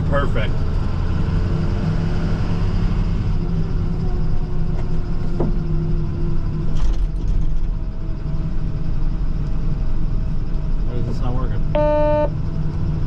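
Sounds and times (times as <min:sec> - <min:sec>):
truck engine from inside cab: 0:00.0 - 0:13.0.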